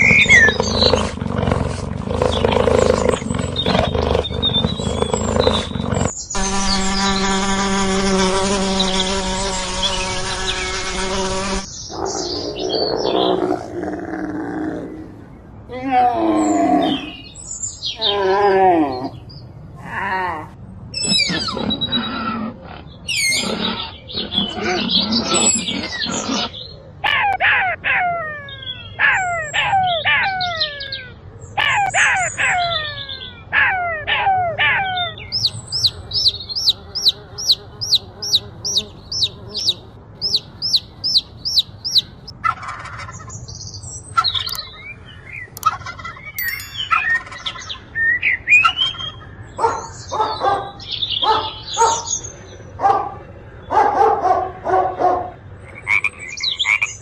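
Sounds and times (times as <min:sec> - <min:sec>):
calls falling in pitch: 0:46.4 - 0:47.4.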